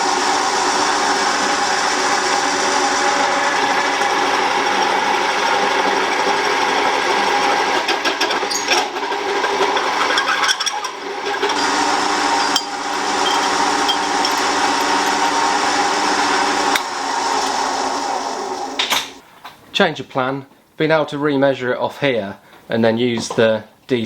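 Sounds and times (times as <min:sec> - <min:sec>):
milling machine humming: 0:00.0 - 0:18.8.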